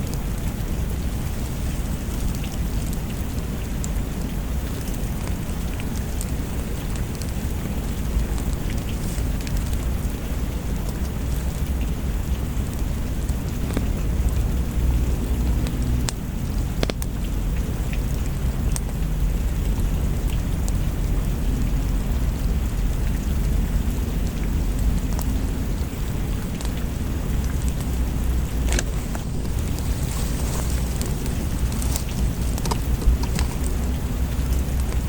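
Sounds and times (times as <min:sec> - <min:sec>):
fire crackles: 0:00.0 - 0:35.0
steady rain: 0:00.0 - 0:35.0
deep low rumble: 0:18.4 - 0:35.0.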